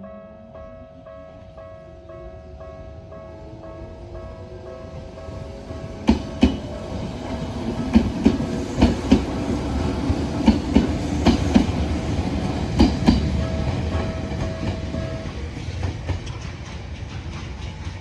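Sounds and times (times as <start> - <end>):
train wheels clicking over rail joints: 4.9 - 18.0.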